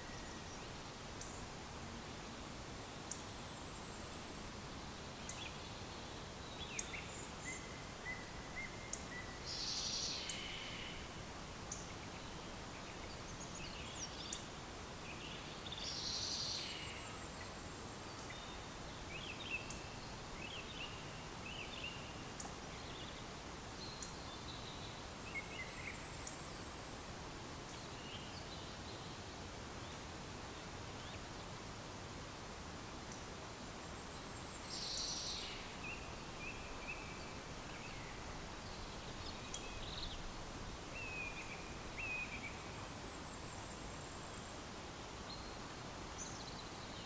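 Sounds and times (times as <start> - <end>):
steady background hiss: 0.0 - 47.0
small birds chirping and singing: 34.0 - 44.4.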